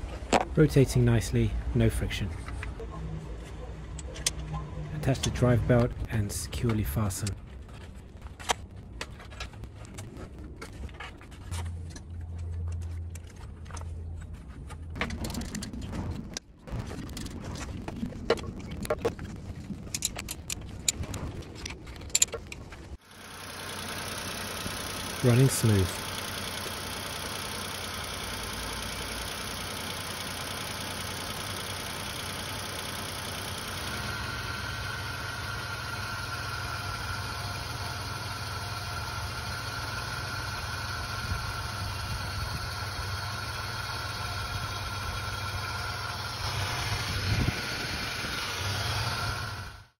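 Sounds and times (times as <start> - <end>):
engine knock: 23.0 - 49.9
car engine idling: 23.0 - 50.0.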